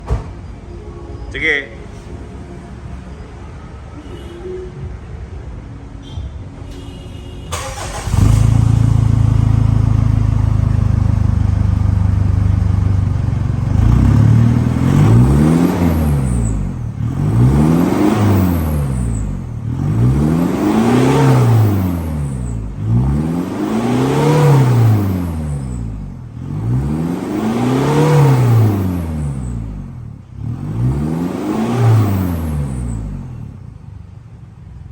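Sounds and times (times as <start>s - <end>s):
car engine idling and revving: 7.5s - 34.9s.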